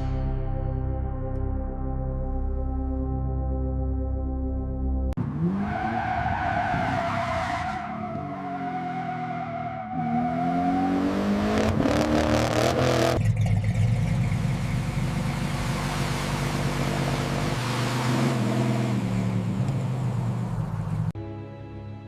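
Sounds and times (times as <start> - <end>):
car engine revving: 5.2 - 21.2.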